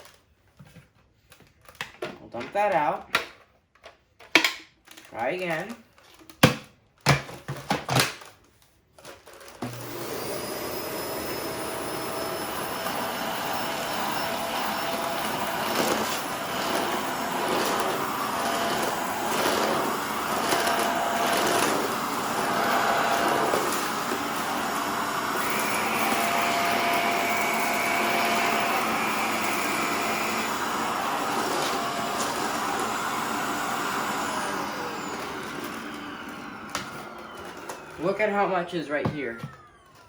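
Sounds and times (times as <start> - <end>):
vacuum cleaner whining: 9.0 - 40.0.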